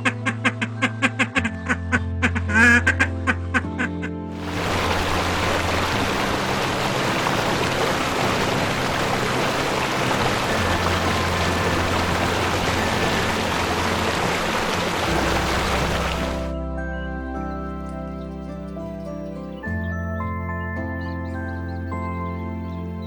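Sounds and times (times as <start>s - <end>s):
soft background music: 0.0s - 23.0s
water rushing: 4.4s - 16.5s.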